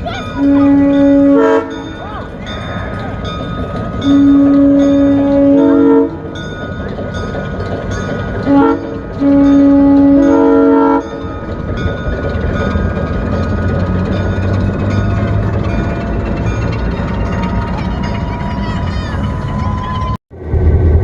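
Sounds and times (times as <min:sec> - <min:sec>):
locomotive air horn blasts: 0:00.4 - 0:01.8, 0:04.1 - 0:06.2, 0:08.5 - 0:11.2
steady rumble: 0:11.0 - 0:21.0.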